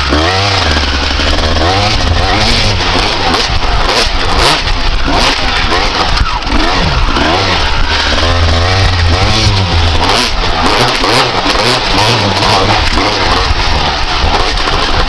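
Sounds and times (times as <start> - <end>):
two-stroke motorcycle engine revving: 0.0 - 15.0.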